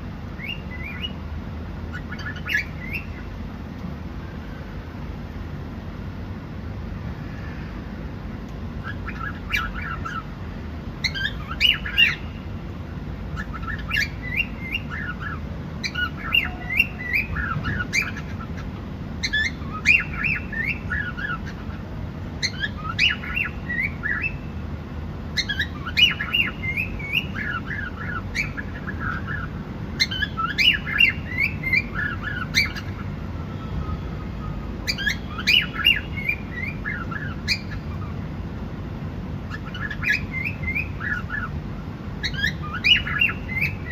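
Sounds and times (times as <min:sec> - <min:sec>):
steady low hum: 0:00.0 - 0:43.9
cockatiel chirping: 0:00.4 - 0:01.2, 0:01.9 - 0:03.2, 0:08.8 - 0:10.3, 0:11.0 - 0:12.4, 0:13.4 - 0:21.8, 0:22.4 - 0:24.5, 0:25.4 - 0:33.1, 0:33.8 - 0:38.2, 0:39.5 - 0:41.5, 0:42.2 - 0:43.9.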